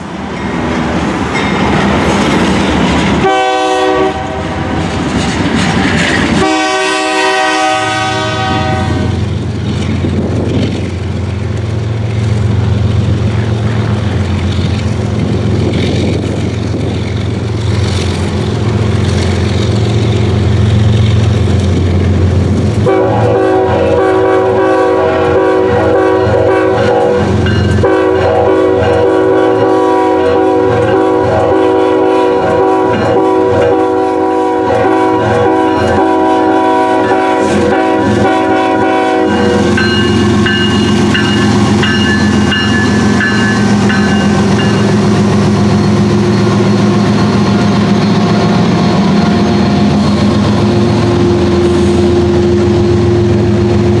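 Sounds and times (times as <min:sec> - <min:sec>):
low rumble of train: 0:00.0 - 0:54.0
diesel locomotive horn chord: 0:03.2 - 0:04.6, 0:06.4 - 0:09.2, 0:22.8 - 0:42.2.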